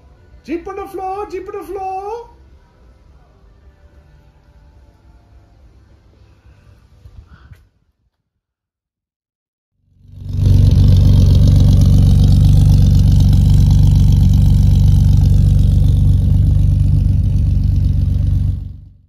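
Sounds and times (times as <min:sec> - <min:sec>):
car engine idling: 0:10.0 - 0:19.0.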